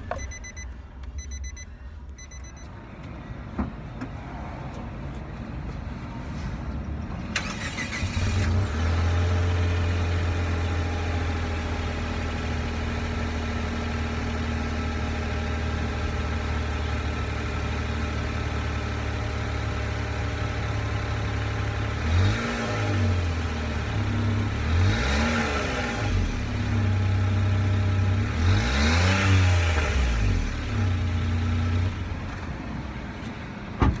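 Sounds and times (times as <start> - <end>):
car engine starting and idling: 0.0 - 4.0, 7.1 - 28.7, 29.3 - 34.0
car engine revving: 21.8 - 32.3.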